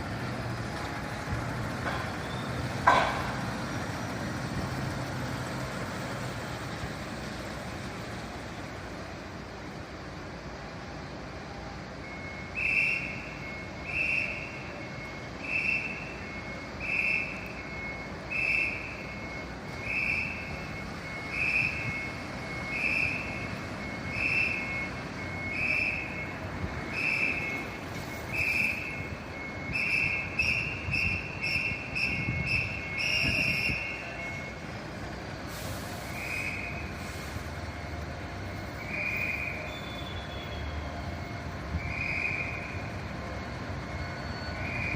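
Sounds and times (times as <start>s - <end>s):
low engine rumble: 0.0s - 44.9s
electronic warning beeper: 11.9s - 44.9s.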